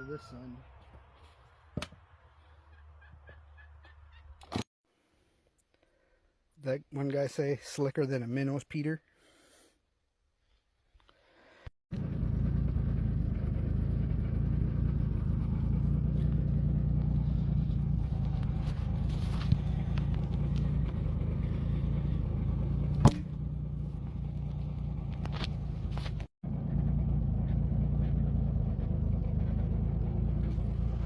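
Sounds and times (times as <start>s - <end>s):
engine running steadily: 11.9s - 31.0s.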